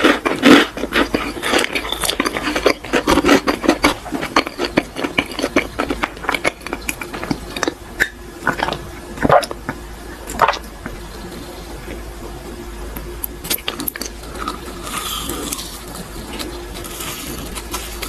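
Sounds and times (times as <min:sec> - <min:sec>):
chewing with wet mouth smacks: 0:00.0 - 0:12.0.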